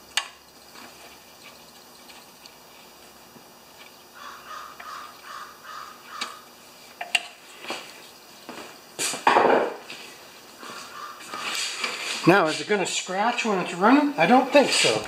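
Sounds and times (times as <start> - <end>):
bird calling: 3.9 - 6.6, 10.5 - 12.1.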